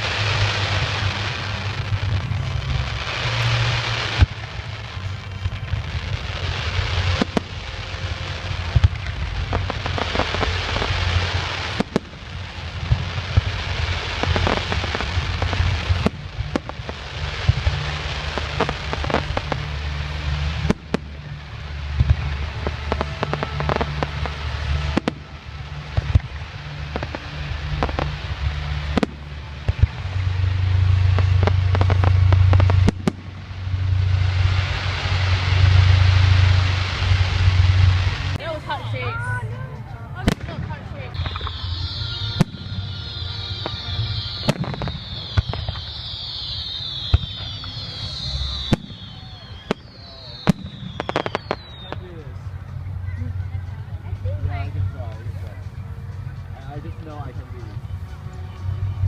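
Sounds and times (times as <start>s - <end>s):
fireworks crackling: 0.0s - 59.0s
low rumble: 0.0s - 59.0s
fireworks shells bursting: 40.3s - 51.9s.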